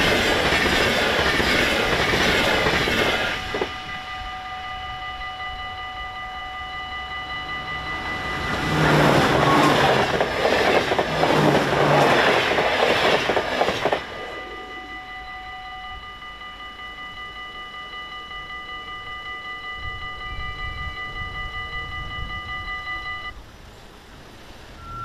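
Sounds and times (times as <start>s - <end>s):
train clattering over crossing: 0.0s - 4.0s, 7.1s - 14.9s
crossing warning bells ringing: 0.0s - 23.4s, 24.6s - 25.0s.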